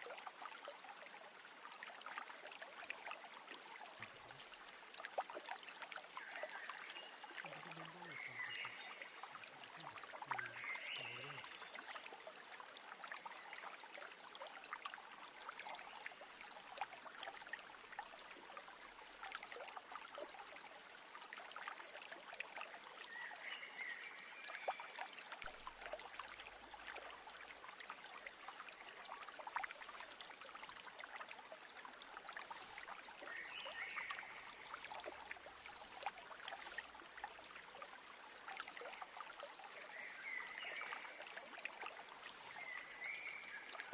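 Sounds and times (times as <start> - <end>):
stream trickling: 0.0 - 43.9.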